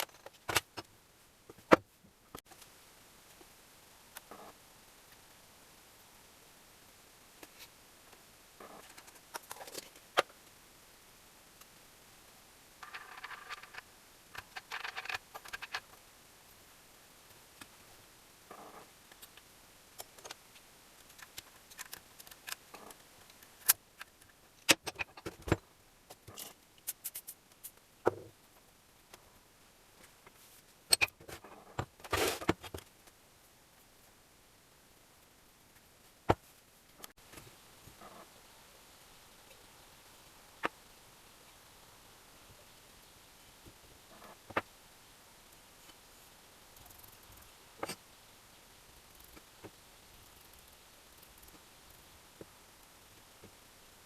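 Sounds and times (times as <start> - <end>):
metal parts scraping and rattling: 12.8 - 16.0, 30.9 - 32.8.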